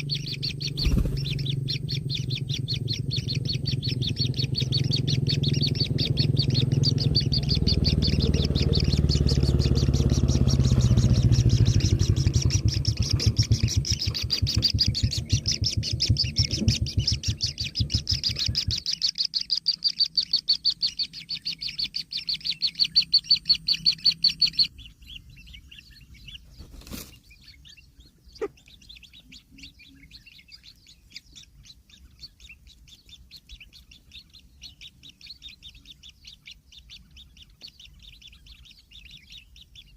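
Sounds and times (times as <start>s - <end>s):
low rumble: 0.0s - 18.9s
chicks chirping: 0.0s - 39.9s.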